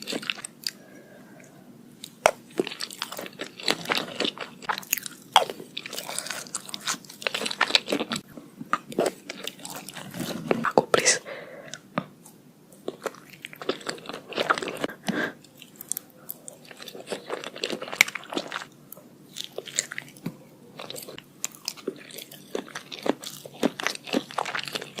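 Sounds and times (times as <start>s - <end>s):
crunchy biting and chewing: 2.1s - 10.8s, 20.8s - 25.0s.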